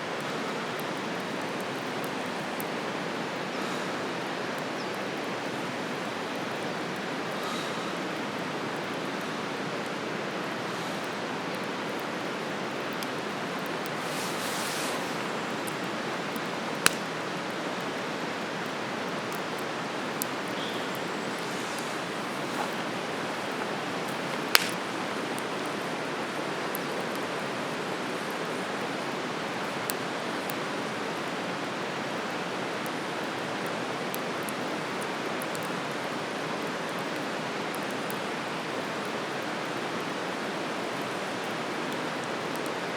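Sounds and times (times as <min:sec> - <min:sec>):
campfire burning: 0:00.0 - 0:42.9
fire crackles and pops: 0:00.2 - 0:07.3, 0:09.8 - 0:36.1.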